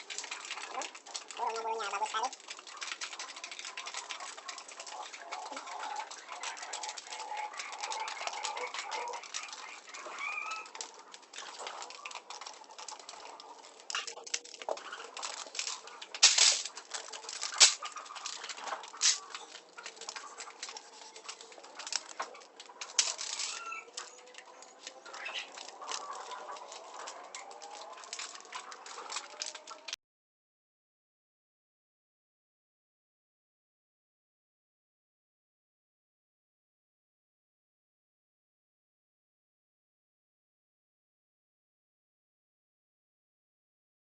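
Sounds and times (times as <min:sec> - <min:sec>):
pigeons cooing: 0:00.0 - 0:29.8
pigeons pecking feed: 0:00.0 - 0:30.0.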